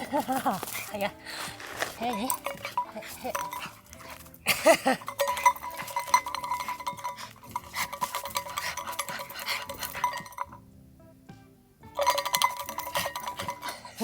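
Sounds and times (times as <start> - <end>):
quiet background music: 0.0 - 14.0.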